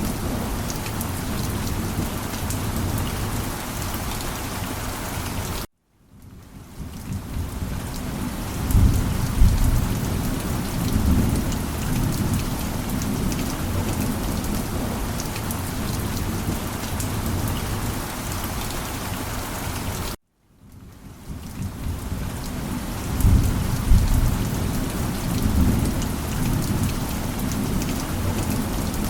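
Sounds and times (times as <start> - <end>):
heavy rain pattering: 0.0 - 29.0
low thunder rumble: 6.2 - 18.4, 21.3 - 29.0.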